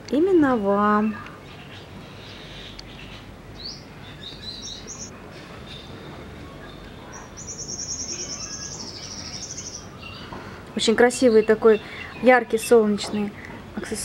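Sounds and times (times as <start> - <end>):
faint background noise: 0.0 - 14.0
small birds chirping: 0.0 - 14.0
bird trilling: 7.1 - 10.3.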